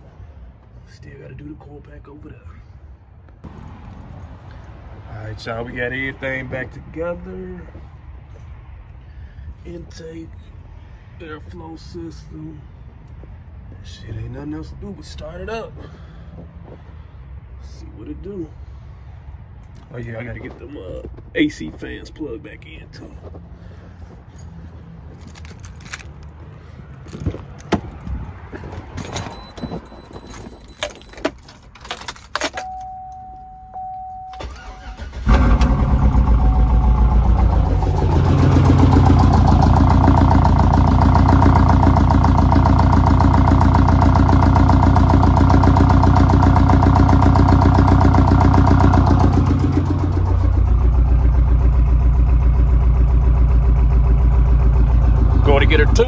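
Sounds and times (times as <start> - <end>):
engine starting and idling: 34.3 - 56.0.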